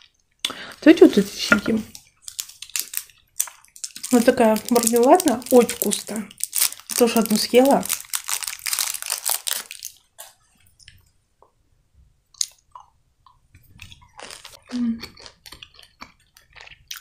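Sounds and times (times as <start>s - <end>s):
soft candy being chewed: 0.0s - 11.6s, 12.3s - 17.0s
candy wrapper crinkling: 0.5s - 10.3s, 14.1s - 16.6s.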